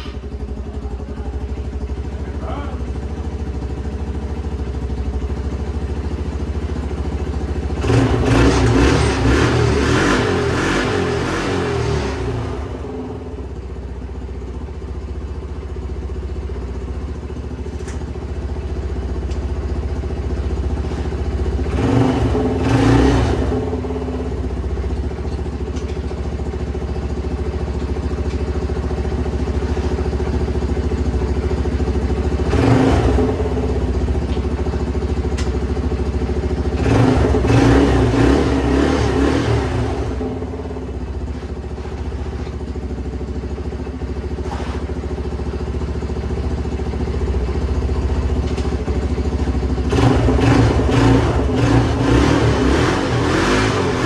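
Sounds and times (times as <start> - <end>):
small engine revving: 7.8 - 13.4, 21.6 - 24.3, 32.4 - 33.8, 36.8 - 40.9, 44.4 - 45.0, 49.8 - 54.0.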